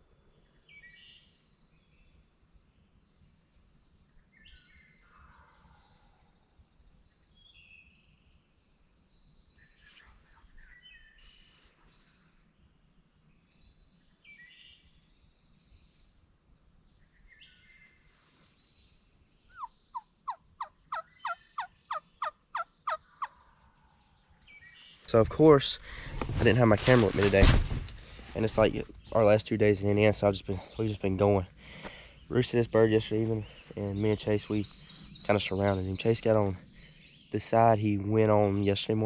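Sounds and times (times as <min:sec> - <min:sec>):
faint songbirds calling: 0:00.0 - 0:27.3, 0:27.9 - 0:39.0
wild turkey yelps: 0:19.5 - 0:23.8.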